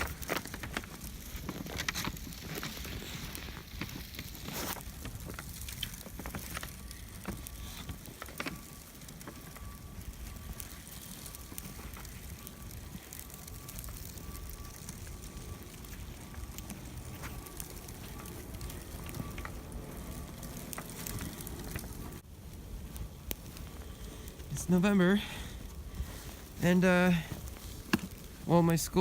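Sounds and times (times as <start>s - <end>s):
crackles and clicks: 0.0s - 29.0s
wind rumbling on microphone: 0.0s - 29.0s
faint steady high tone: 5.7s - 22.2s, 23.4s - 29.0s.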